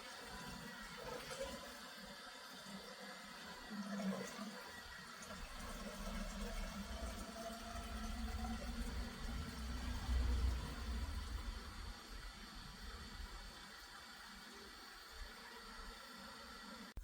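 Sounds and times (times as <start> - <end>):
coolant rushing and gurgling: 0.0 - 15.4
electric water pump running: 0.0 - 16.8
low hum: 7.8 - 13.5.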